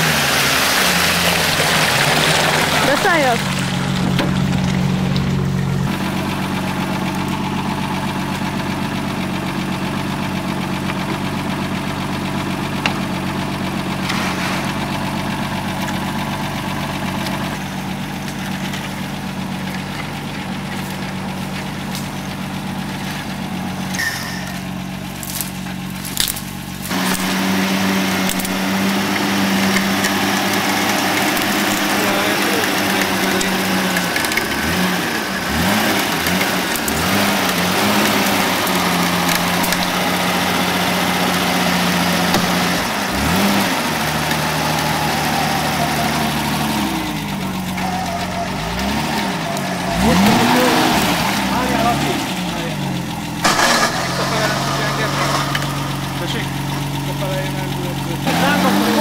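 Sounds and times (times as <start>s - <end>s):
off-road vehicle engine idling: 0.0s - 59.0s.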